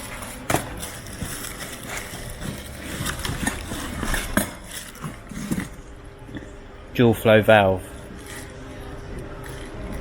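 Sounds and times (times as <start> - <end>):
packaging rustling: 0.0 - 5.2.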